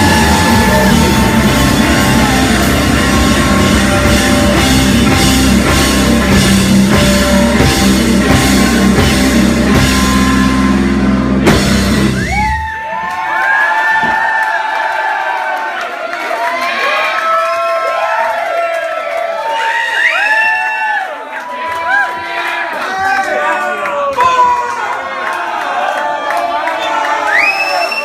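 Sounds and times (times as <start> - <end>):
heavy rock band playing: 0.0 - 12.8
crowd cheering: 0.0 - 28.0.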